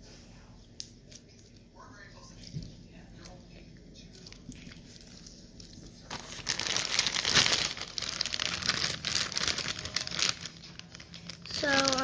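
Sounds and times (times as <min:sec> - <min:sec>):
slime crackling and popping: 0:06.1 - 0:12.0.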